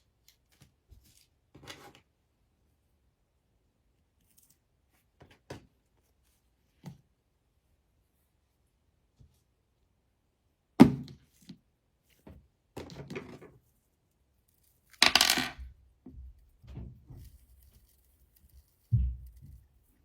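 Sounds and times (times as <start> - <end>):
rustling: 17.1 - 20.0.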